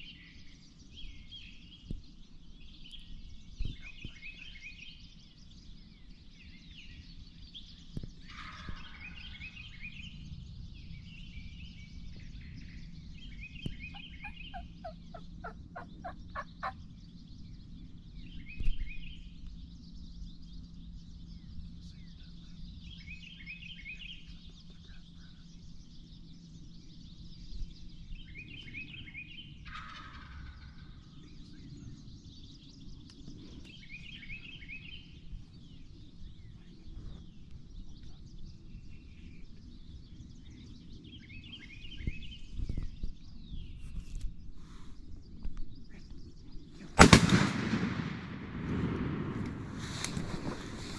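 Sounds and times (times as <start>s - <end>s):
turkey gobbling: 13.9s - 16.8s, 29.7s - 30.8s
turkey yelping: 13.9s - 16.8s.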